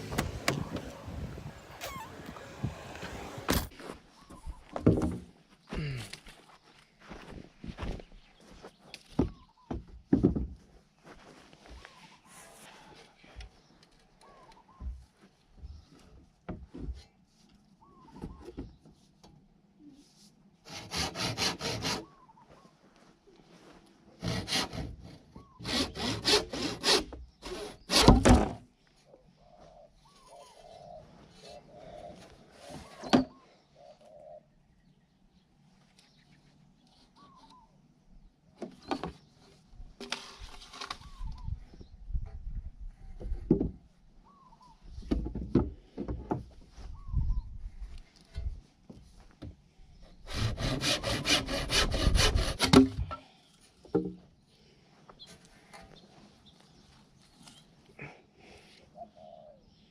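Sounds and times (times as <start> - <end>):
hand saw cutting bamboo: 20.6 - 22.1, 24.2 - 28.4, 50.3 - 53.1.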